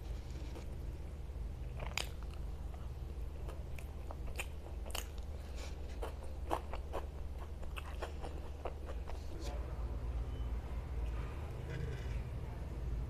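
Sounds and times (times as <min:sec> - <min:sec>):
person chewing food: 0:00.0 - 0:09.4
mouth clicks and smacks: 0:01.6 - 0:05.4, 0:06.0 - 0:09.2.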